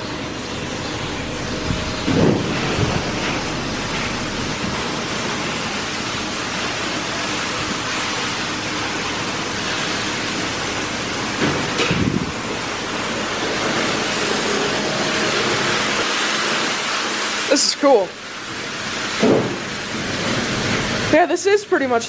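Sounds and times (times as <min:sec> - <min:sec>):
car wash spraying water: 0:00.0 - 0:22.0
low thump: 0:01.4 - 0:04.9.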